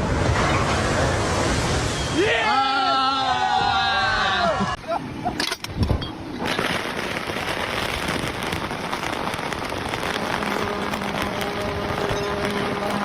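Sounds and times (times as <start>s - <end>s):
water splashing and spraying: 0.0s - 3.2s, 6.4s - 13.0s.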